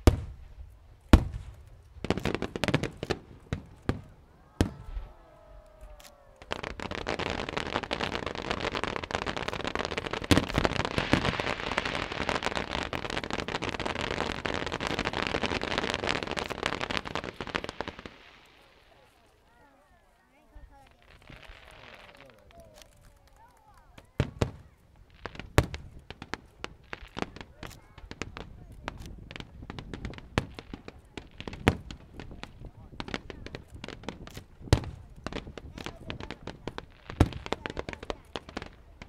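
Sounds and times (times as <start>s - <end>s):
firework bangs: 0.0s - 19.0s, 23.9s - 39.0s
fireworks crackling: 0.0s - 39.0s.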